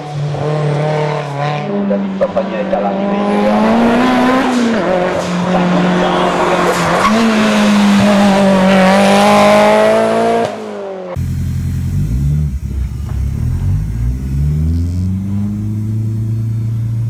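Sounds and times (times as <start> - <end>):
race car engine revving: 0.0 - 17.0
car engine idling: 11.1 - 17.0.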